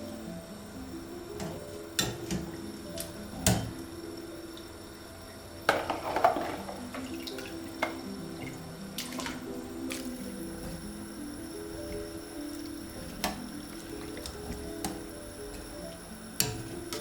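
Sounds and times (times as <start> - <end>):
soft background music: 0.0 - 17.0
tap water rushing: 4.5 - 17.0
dishes knocking: 5.7 - 7.1.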